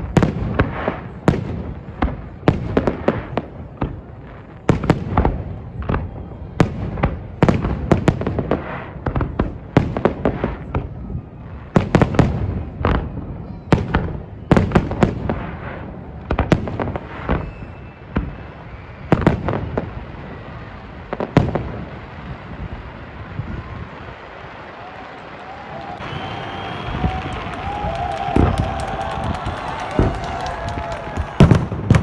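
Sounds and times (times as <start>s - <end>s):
fireworks bursting: 13.8s - 32.0s.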